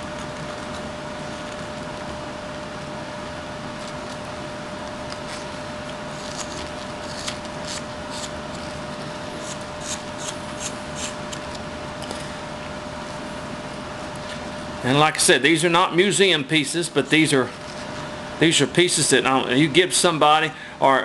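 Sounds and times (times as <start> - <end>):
steady background hum: 0.0 - 21.0
knife slicing wood shavings: 3.8 - 11.6.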